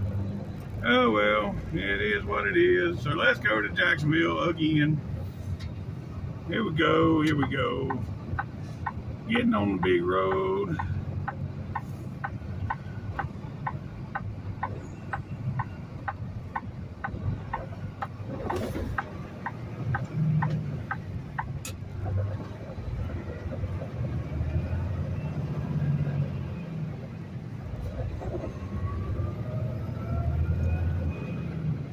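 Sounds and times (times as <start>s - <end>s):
truck diesel engine rumble: 0.0s - 31.9s
turn signal ticking: 6.7s - 27.1s.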